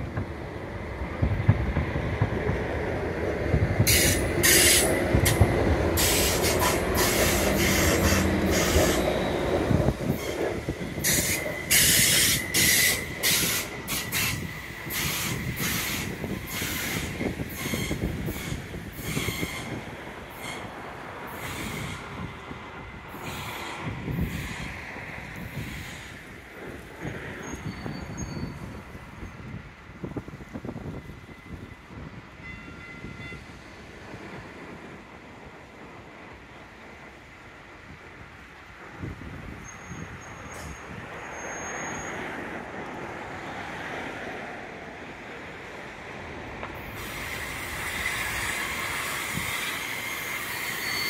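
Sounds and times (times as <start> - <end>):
train engine rumble: 0.0 - 51.0
wheels clacking on track: 0.0 - 51.0
thin steady squeal: 27.4 - 29.4, 47.8 - 51.0.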